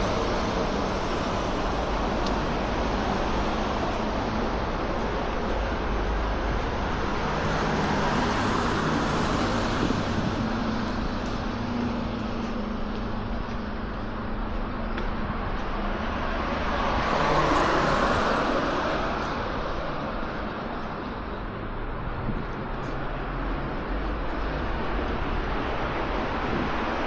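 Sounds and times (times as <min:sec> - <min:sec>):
cars driving past: 0:00.0 - 0:27.0.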